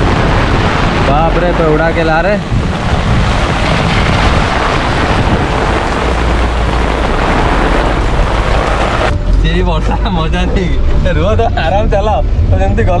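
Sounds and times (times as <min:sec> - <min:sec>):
wind buffeting microphone: 0:00.0 - 0:09.8
heavy rain: 0:00.0 - 0:11.0.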